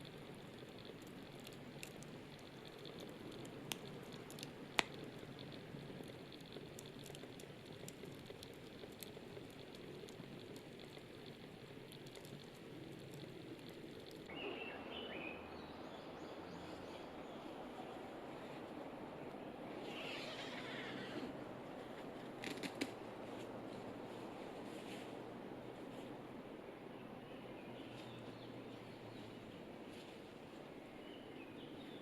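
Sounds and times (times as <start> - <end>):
campfire crackling: 0.0 - 27.2
bird chirps: 14.3 - 16.9.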